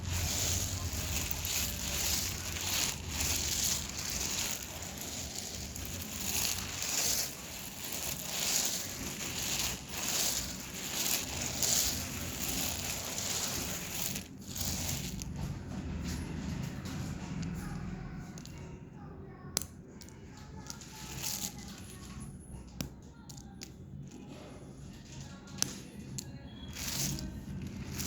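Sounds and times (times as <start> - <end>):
dry clay crunching: 0.0 - 15.5, 26.6 - 28.0.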